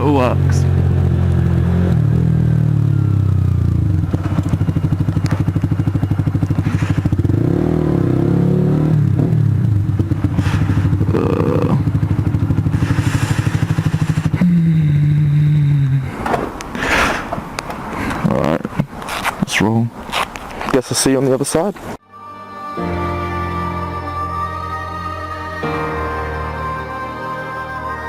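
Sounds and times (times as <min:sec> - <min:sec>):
motorcycle engine running: 0:00.0 - 0:15.9.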